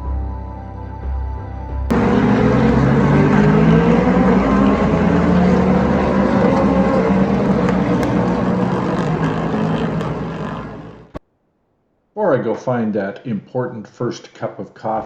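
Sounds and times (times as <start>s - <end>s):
racing car engines droning: 1.9s - 11.2s.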